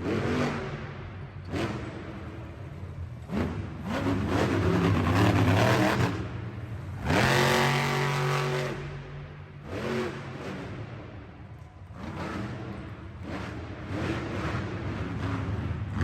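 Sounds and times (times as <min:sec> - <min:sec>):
truck engine revving hard: 0:03.3 - 0:06.4, 0:07.0 - 0:09.0.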